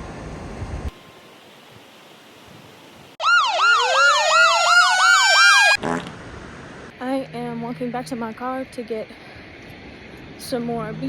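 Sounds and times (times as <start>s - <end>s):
siren-like warbling tone: 3.2s - 6.7s.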